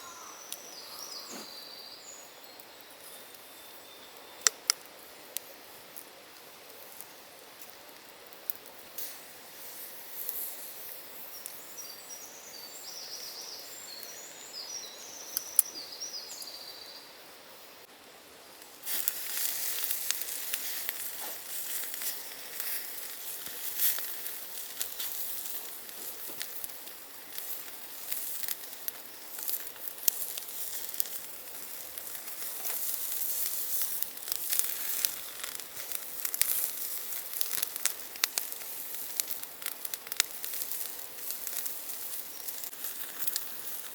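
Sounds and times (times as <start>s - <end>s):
birdsong: 0.0s - 4.5s, 11.2s - 17.2s
food frying with crackles: 0.1s - 43.9s.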